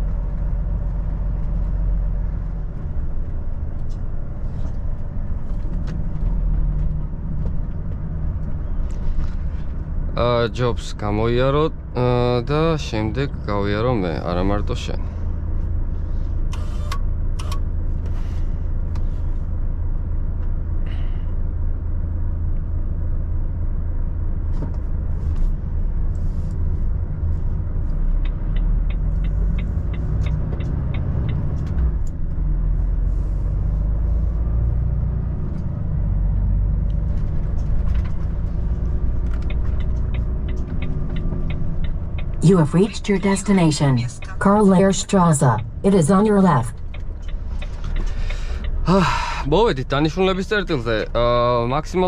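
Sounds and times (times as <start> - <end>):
truck engine low rumble: 0.0 - 52.0
turn signal ticking: 27.6 - 32.6, 33.5 - 51.1.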